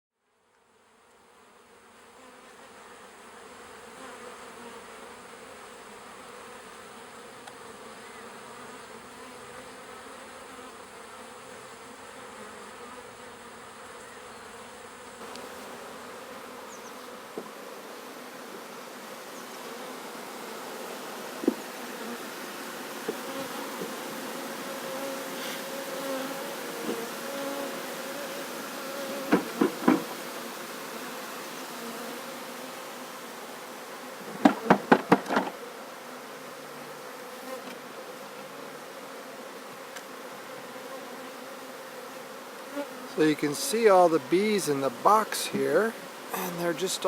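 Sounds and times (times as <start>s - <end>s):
honeybees buzzing: 0.8s - 47.0s
short knocks: 29.3s - 30.2s, 34.4s - 35.6s.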